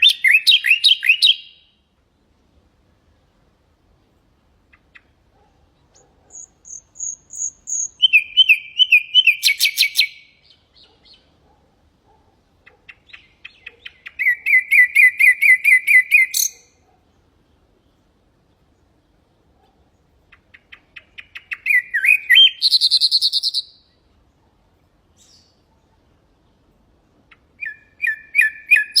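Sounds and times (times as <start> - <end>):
nightingale singing: 0.0 - 1.9, 4.6 - 11.5, 12.6 - 16.9, 20.2 - 24.1, 25.1 - 25.8, 27.3 - 29.0.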